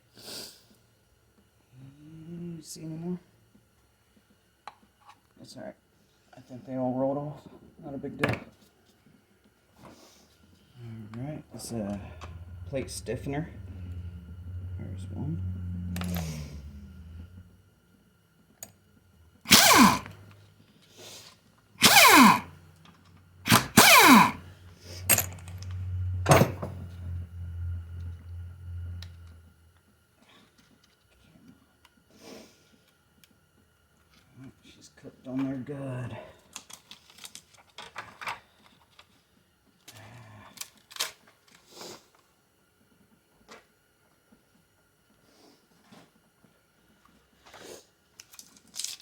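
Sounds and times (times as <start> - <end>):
steady low hum: 10.3 - 20.9, 21.5 - 29.9
power driver spinning: 11.5 - 17.6, 19.4 - 20.3, 21.8 - 22.7, 23.4 - 29.5.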